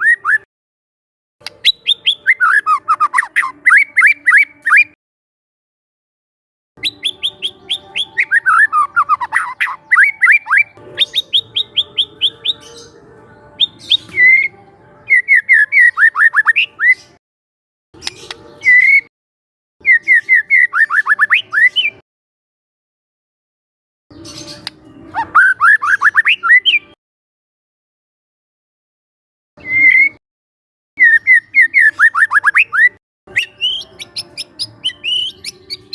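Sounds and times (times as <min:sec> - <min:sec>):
bird singing rapid notes: 0:01.4 - 0:05.0, 0:06.8 - 0:17.2, 0:19.8 - 0:22.0, 0:29.6 - 0:30.2, 0:31.0 - 0:35.9.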